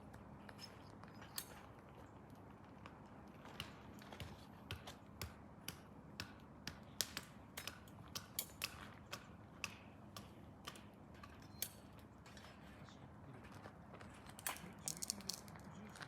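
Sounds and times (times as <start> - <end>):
wood pellets crackling and popping: 14.4 - 16.0.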